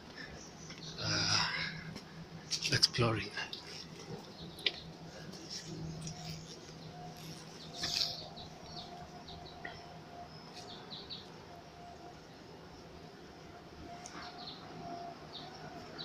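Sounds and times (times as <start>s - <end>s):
faint low hum: 0.0s - 16.0s
small birds chirping: 0.1s - 13.3s, 14.0s - 16.0s.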